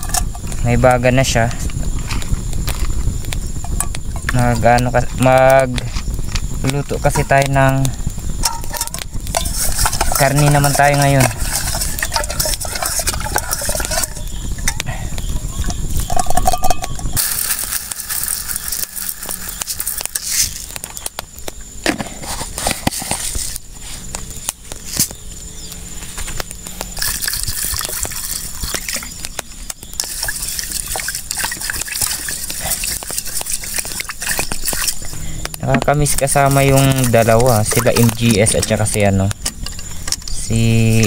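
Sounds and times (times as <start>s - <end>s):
low rumbling: 0.0s - 22.2s
pots and utensils clicking: 8.4s - 14.9s, 15.6s - 21.1s, 27.0s - 29.4s, 30.0s - 38.9s
liquid sloshing and splashing: 8.6s - 14.7s, 27.0s - 29.2s, 30.0s - 35.2s, 36.2s - 38.7s.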